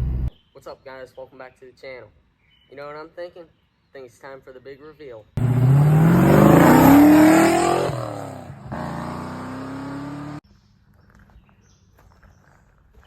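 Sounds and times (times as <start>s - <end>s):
car engine accelerating: 5.4s - 10.4s.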